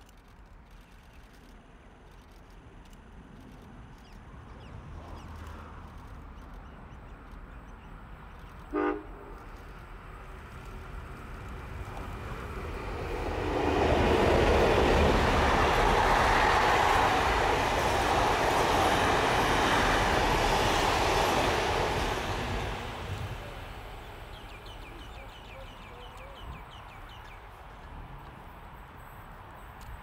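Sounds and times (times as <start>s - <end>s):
train wheels rumbling on rails: 8.2s - 30.0s.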